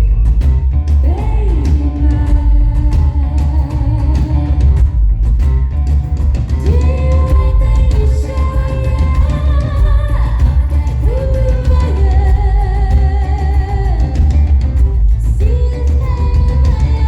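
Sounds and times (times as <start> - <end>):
woman singing: 1.0 - 5.1, 6.6 - 17.0.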